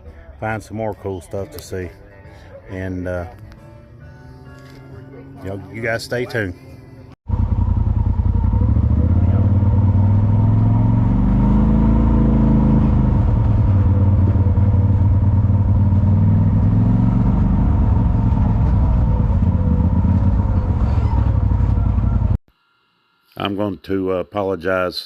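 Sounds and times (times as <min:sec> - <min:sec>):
vehicle engine rumbling: 0:07.3 - 0:22.4.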